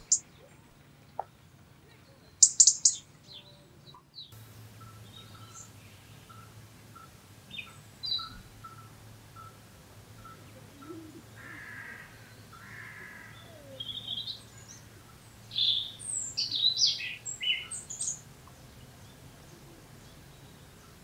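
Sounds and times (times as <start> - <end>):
songbird singing high sweeping notes: 0.0 - 0.2, 2.4 - 3.6, 4.2 - 9.6, 13.4 - 19.2.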